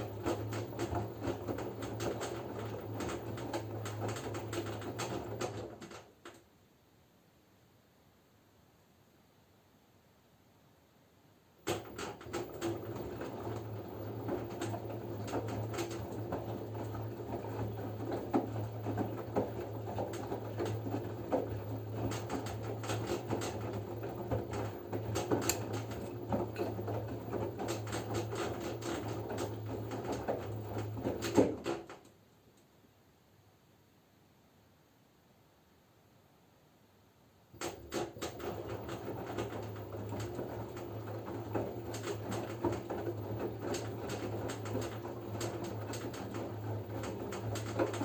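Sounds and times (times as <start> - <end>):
laundry tumbling and knocking: 0.0 - 6.1, 11.6 - 32.0, 37.6 - 48.0
washing machine motor hum: 0.0 - 6.3, 11.6 - 32.1, 37.5 - 48.0.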